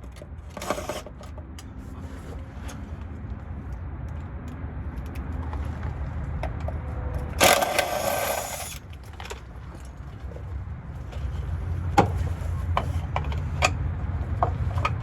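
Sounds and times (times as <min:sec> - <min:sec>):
impact wrench whirring: 0:07.4 - 0:08.8.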